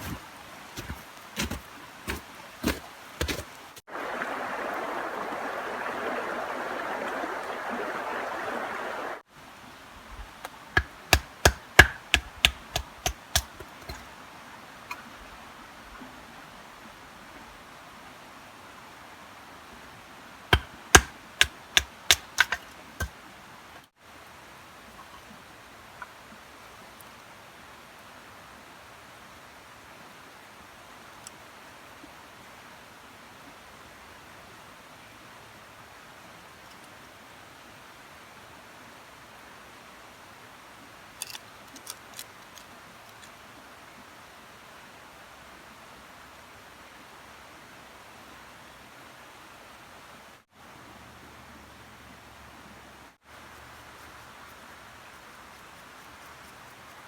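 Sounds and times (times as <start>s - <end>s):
rain falling in woods: 0.0s - 57.0s
rain hissing: 0.8s - 9.3s.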